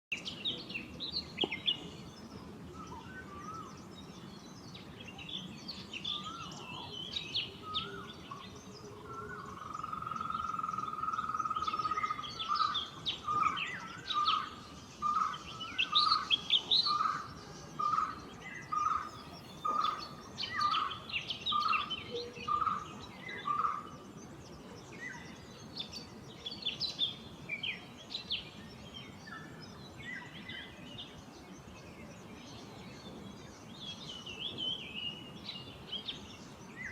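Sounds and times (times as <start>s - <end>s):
birds chirping and whistling: 0.2s - 24.1s.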